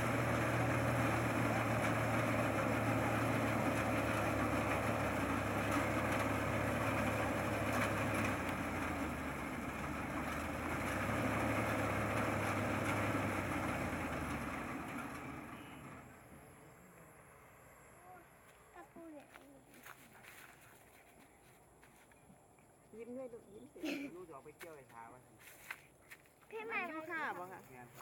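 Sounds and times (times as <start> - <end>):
vehicle engine running: 0.0 - 22.4, 23.0 - 28.0.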